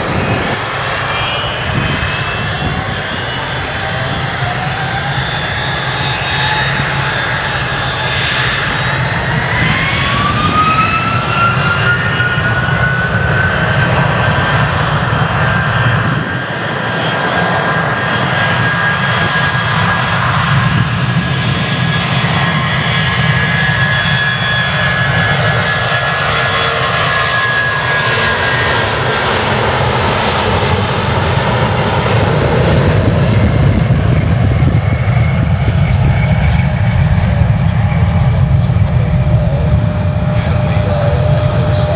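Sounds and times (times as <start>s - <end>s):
hissing rush: 0.0s - 11.6s
jet engine rumble: 0.0s - 13.2s, 28.7s - 41.9s
jet engine whine: 0.0s - 41.9s.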